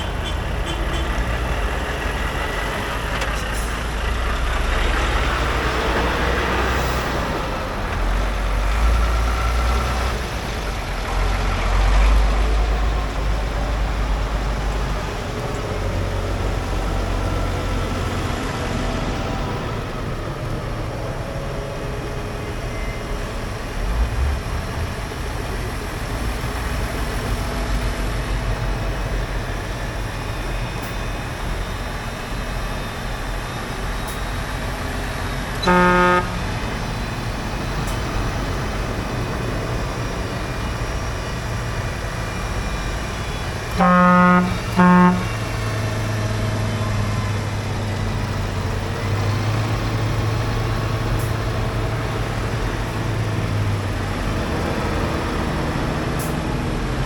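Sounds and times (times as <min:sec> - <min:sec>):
horn toots: 0:00.0 - 0:01.5, 0:35.6 - 0:36.8, 0:43.7 - 0:45.7
tractor engine running: 0:00.0 - 0:57.0.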